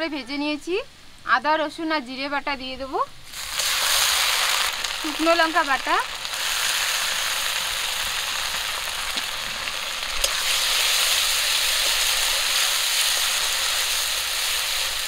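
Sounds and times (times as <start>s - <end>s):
pastes sizzling in hot oil: 3.2s - 15.0s.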